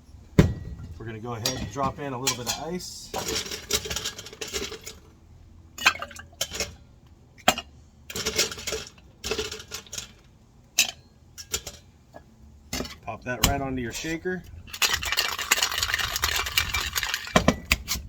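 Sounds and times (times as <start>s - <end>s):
ice cubes rattling in glass: 14.7s - 17.4s
ice cubes clinking against glass: 14.8s - 17.4s.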